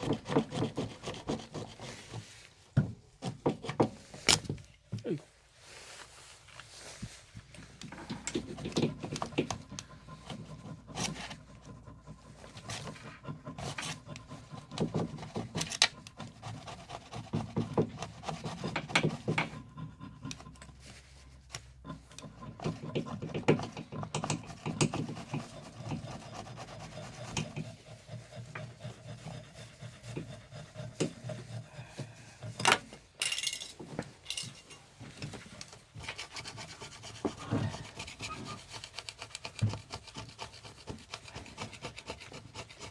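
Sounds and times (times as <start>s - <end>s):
hand tools scraping and rubbing: 0.0s - 4.4s, 5.6s - 42.9s
tool knocks and clicks: 32.6s - 34.6s.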